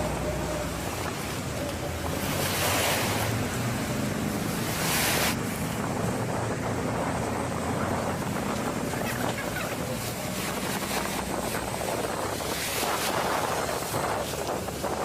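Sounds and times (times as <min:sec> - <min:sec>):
sea surf rushing: 0:00.0 - 0:15.0
wind buffeting microphone: 0:00.0 - 0:15.0.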